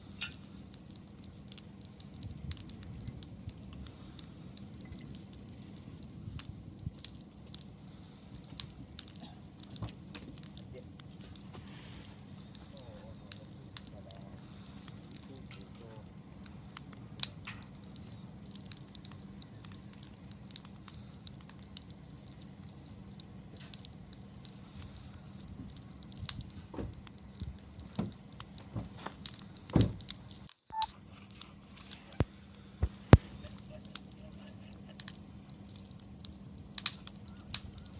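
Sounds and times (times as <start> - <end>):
campfire crackling and popping: 0.0 - 37.9
faint low hum: 0.0 - 37.9.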